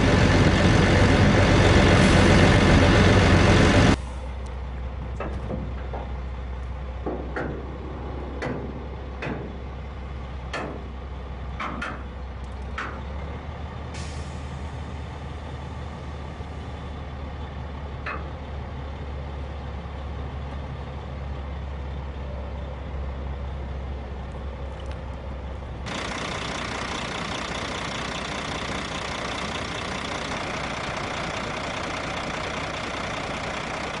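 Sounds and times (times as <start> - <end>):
loud steady rushing noise: 0.0 - 4.0
diesel engine idling: 0.0 - 34.0
sharp clicks and knocks: 5.0 - 6.3, 7.0 - 9.7, 10.5 - 11.0, 11.6 - 13.1.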